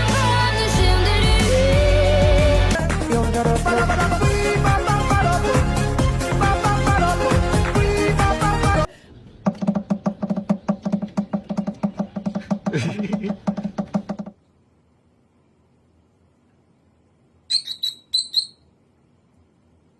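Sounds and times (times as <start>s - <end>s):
high-pitched bird chirps: 17.5s - 18.7s.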